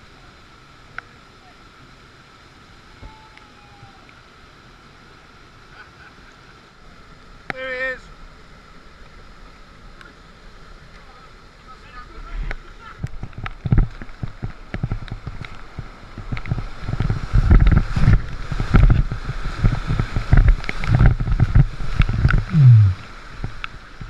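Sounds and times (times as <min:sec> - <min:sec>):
whitewater splashing and gurgling: 0:02.8 - 0:24.0
knocks and splashes: 0:13.1 - 0:24.0
sound falling in pitch: 0:22.5 - 0:23.0.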